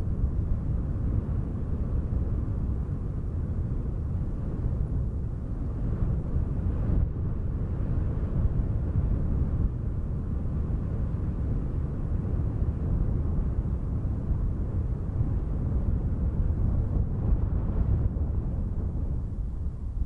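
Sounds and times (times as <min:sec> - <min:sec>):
wind blowing in gusts: 0:00.0 - 0:20.0.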